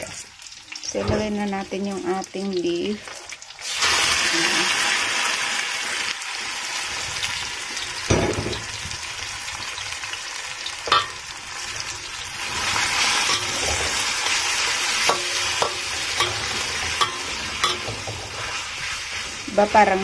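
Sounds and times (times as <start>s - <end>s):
beef sizzling in a wok: 0.0s - 20.0s
metal spatula knocking wok: 10.9s - 11.3s, 13.2s - 14.0s, 15.0s - 18.4s.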